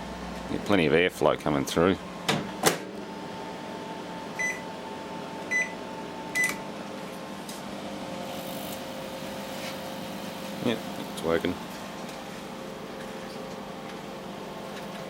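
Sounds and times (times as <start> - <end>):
microwave oven fan humming: 0.0 - 15.0
short keypad beeps: 4.4 - 4.6, 5.5 - 5.8, 6.4 - 6.6.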